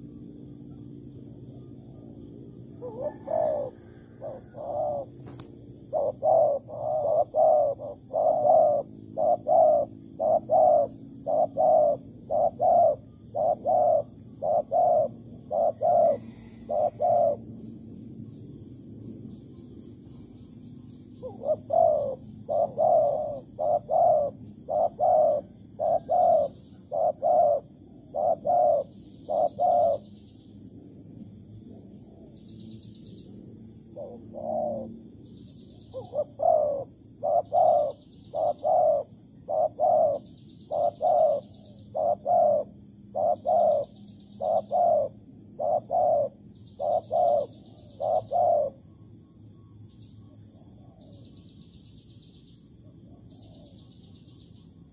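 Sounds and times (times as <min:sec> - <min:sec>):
faint high bird chirps: 0:00.0 - 0:18.6, 0:19.2 - 0:30.7, 0:31.8 - 0:54.9
dove cooing: 0:01.5 - 0:17.6, 0:21.2 - 0:30.1, 0:33.9 - 0:49.0, 0:50.2 - 0:51.2.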